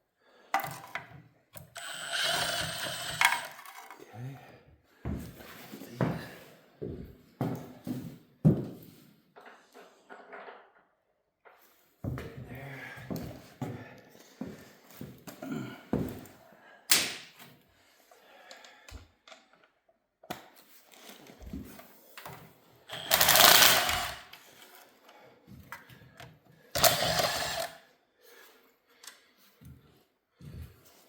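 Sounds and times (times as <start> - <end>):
rattling power tool: 1.6 - 4.0, 22.9 - 24.3, 26.8 - 27.8
metal parts and tools clinking: 1.8 - 4.0, 22.9 - 24.3.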